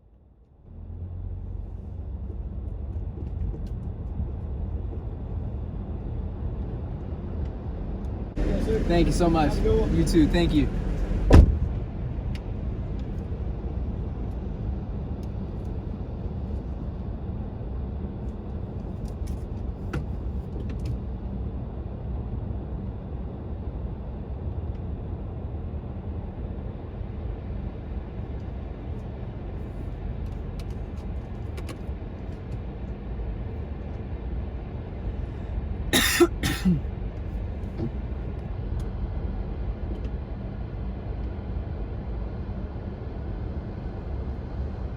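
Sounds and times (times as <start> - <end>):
car cabin rumble: 8.4 - 14.4, 37.6 - 38.3.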